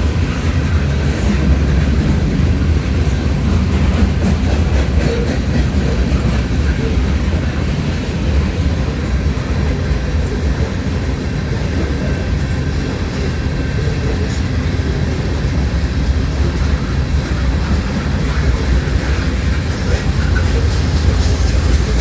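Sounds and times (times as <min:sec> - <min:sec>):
freight train rumbling past: 0:00.0 - 0:22.0.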